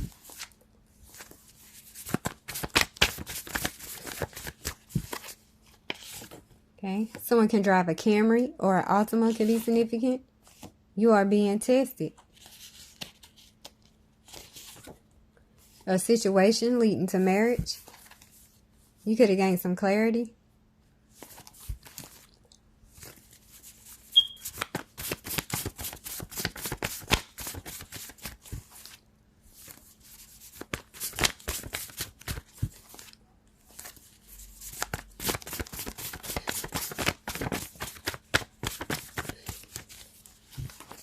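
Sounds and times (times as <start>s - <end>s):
cards being shuffled: 0.0s - 6.4s, 23.0s - 29.0s, 29.6s - 34.0s, 34.6s - 41.0s.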